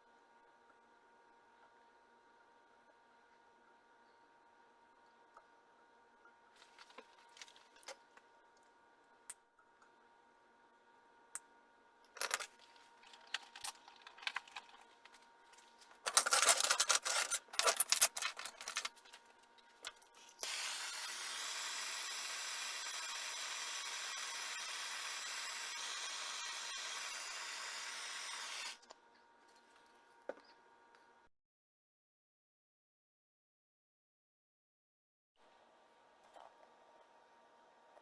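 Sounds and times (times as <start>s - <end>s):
small power tool running: 20.3s - 28.9s.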